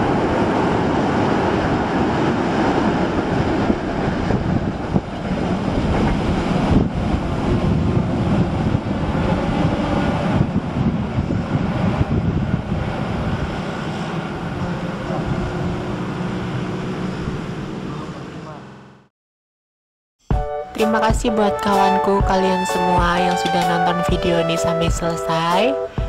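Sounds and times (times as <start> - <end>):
wind buffeting microphone: 0.0 - 17.6
train wheels on rails: 0.0 - 18.0.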